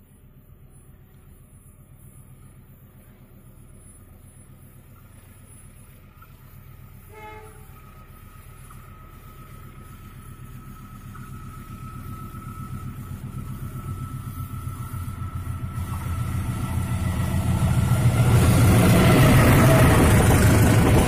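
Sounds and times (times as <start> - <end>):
diesel train engine rumble: 0.0 - 21.0
train horn toot: 7.0 - 8.2.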